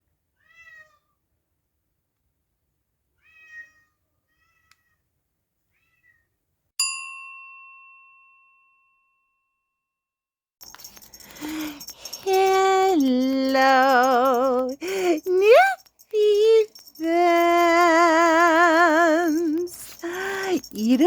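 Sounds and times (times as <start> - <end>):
cat meowing: 0.4 - 1.2, 3.2 - 5.0, 5.7 - 6.2
bright bell-like ding: 6.8 - 9.5.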